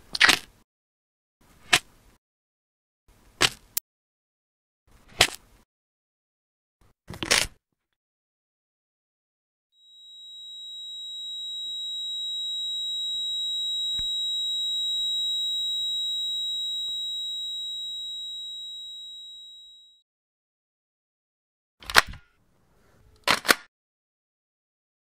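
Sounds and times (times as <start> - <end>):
high-pitched ringing tone: 9.8 - 20.0.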